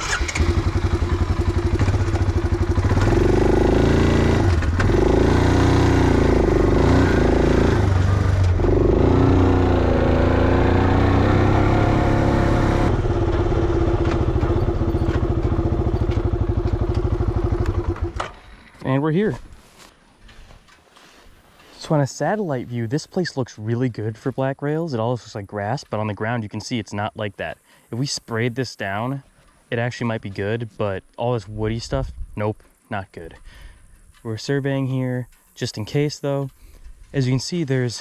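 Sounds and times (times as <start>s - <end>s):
atv engine running: 0.0s - 18.8s.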